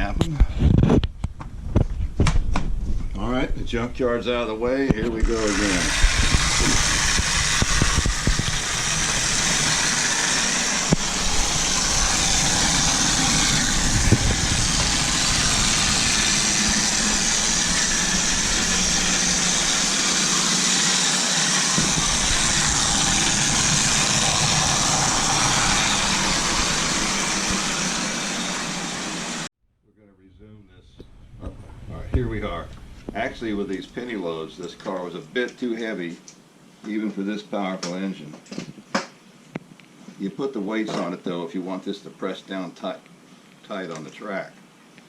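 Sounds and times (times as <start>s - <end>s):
model train whirring and rolling: 5.2s - 29.5s.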